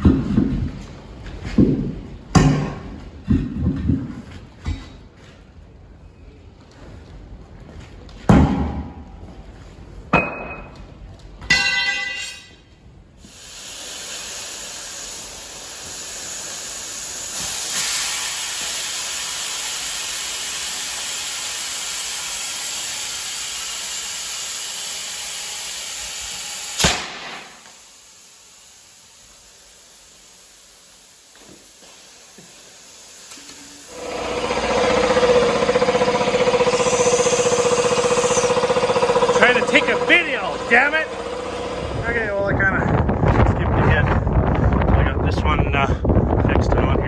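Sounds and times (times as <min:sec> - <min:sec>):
compressed air hiss: 0:13.2 - 0:41.6.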